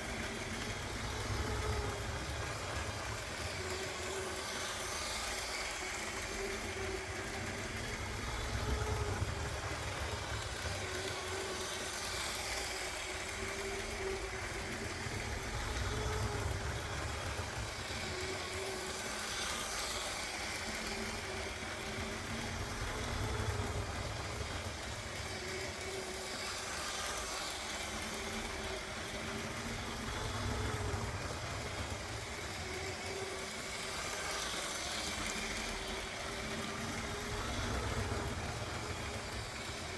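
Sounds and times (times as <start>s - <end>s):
toy train motor humming: 0.0s - 39.9s.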